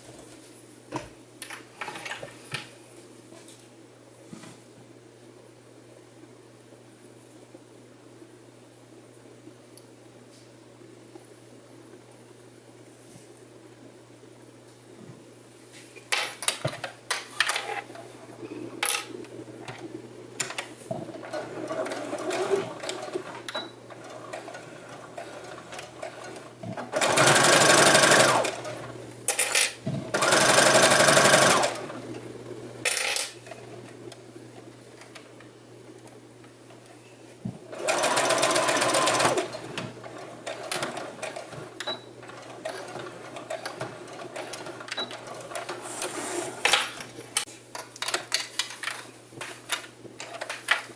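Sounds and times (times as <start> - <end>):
sewing machine stitching: 21.1 - 28.9, 30.1 - 32.0, 37.7 - 46.3.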